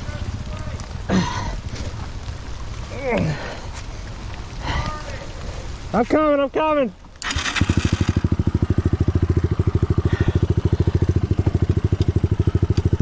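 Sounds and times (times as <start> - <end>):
dirt bike engine idling: 6.0 - 13.0.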